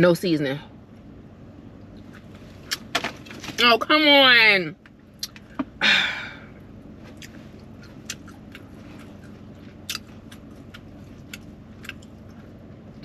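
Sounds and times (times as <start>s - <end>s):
person chewing food: 7.0s - 13.0s.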